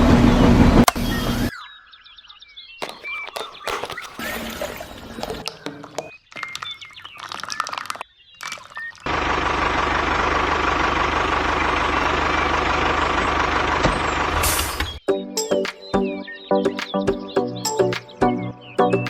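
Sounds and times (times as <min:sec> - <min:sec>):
chirpy music: 0:14.9 - 0:19.0.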